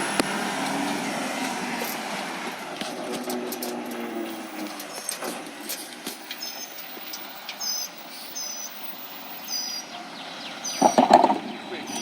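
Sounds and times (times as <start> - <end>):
truck engine and road noise: 0.0 - 12.0
short high squeaks: 6.2 - 8.9.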